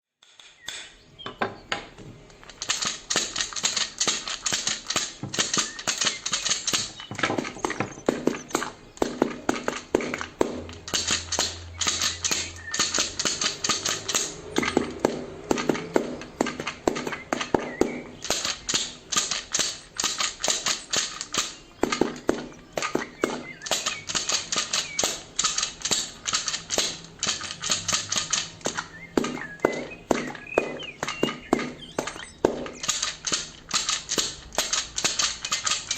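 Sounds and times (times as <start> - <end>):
rapid clicking and tapping: 2.2 - 35.9.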